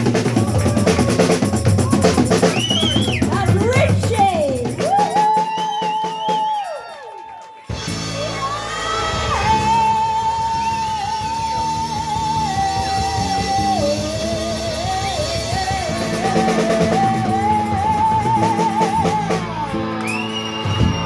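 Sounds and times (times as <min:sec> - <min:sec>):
blues band playing: 0:00.0 - 0:06.6, 0:07.7 - 0:21.0.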